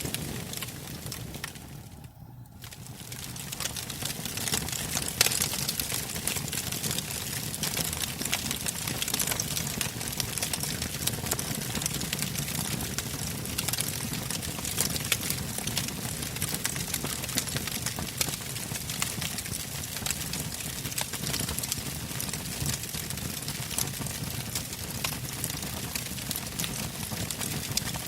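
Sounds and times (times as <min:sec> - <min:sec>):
low rush of flame: 0:00.0 - 0:10.6
logs crackling and snapping: 0:00.0 - 0:28.0.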